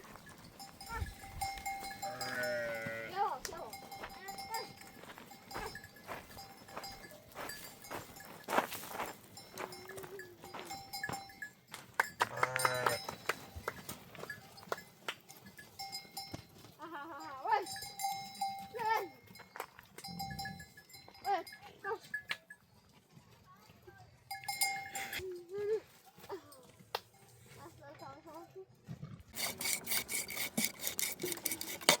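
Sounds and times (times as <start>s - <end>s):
sheep and goats bleating: 0.0s - 6.0s, 12.2s - 13.2s
animal bells clinking: 0.0s - 28.7s, 29.3s - 32.0s.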